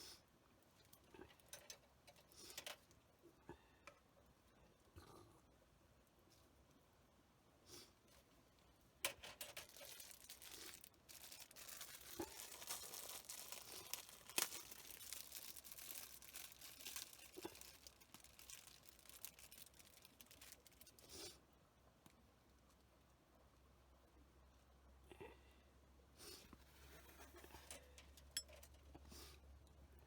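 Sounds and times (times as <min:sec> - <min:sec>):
wrapper crinkling and rustling: 0:09.0 - 0:21.0.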